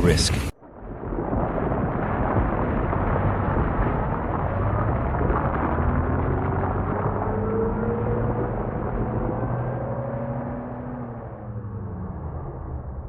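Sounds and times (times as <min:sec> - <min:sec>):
rock slide rumble: 0:00.0 - 0:09.5.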